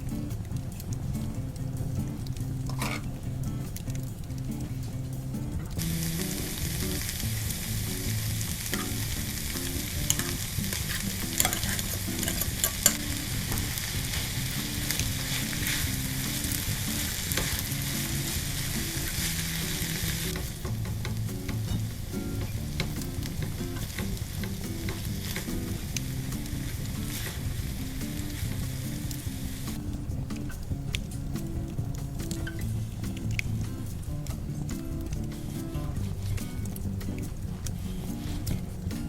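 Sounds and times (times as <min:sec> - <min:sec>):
quiet background music: 0:00.0 - 0:39.0
food sizzling in oil: 0:05.8 - 0:37.1
utensil clicking against pan: 0:07.9 - 0:31.6.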